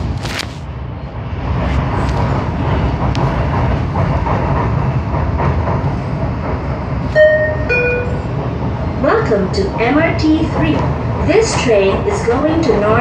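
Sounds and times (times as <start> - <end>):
light rail car rumbling: 0.0 - 13.0
chime note: 7.2 - 8.2.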